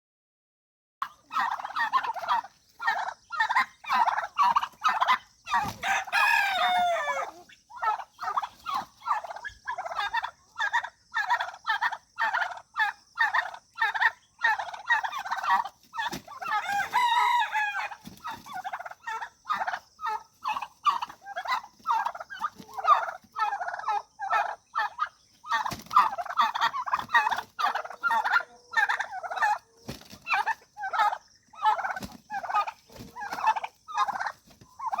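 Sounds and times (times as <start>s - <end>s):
turkey gobbling: 1.0s - 35.0s
rooster crowing: 5.5s - 7.4s, 16.4s - 18.0s.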